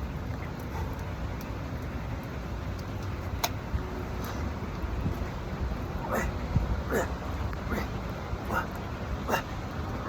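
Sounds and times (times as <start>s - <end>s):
outdoor background rumble: 0.0s - 10.0s.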